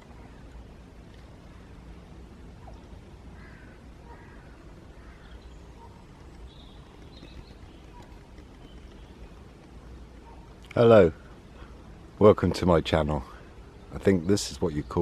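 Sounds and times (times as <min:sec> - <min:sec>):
faint low rumble: 0:00.0 - 0:14.3
small bird chirping: 0:02.6 - 0:11.7
crows cawing: 0:03.3 - 0:05.4.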